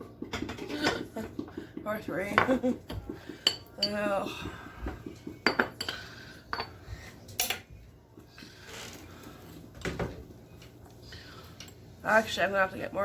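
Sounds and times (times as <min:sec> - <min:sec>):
cup and cutlery clinking: 0:05.0 - 0:06.8.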